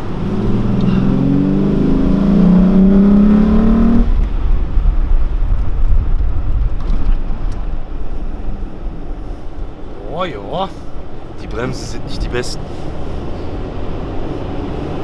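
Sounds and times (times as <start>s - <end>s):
car engine accelerating: 0.0s - 5.4s, 11.5s - 15.0s
low rumble of rolling car: 0.0s - 15.0s.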